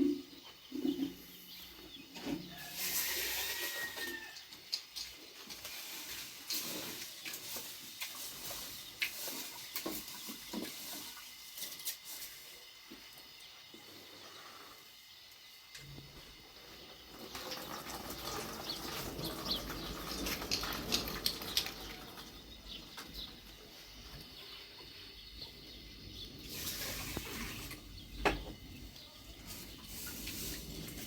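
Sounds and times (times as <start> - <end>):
rain falling: 17.1 - 23.4.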